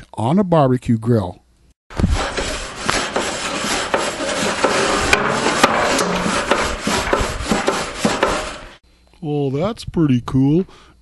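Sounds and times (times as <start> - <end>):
wire brush scraping metal grill: 1.9 - 8.8.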